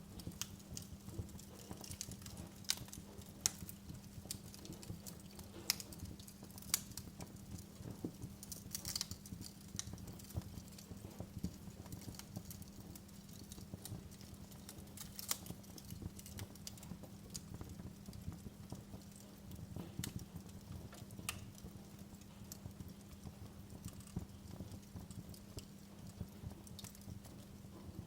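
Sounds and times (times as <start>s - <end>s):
faint steady low hum: 0.0s - 28.0s
wood fire crackling: 0.0s - 28.0s.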